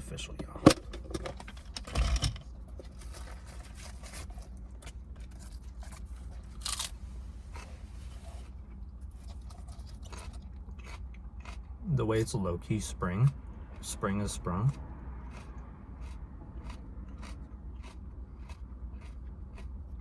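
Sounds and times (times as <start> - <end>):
steady low hum: 0.0 - 20.0
lettuce leaves tearing and crunching: 3.0 - 7.7.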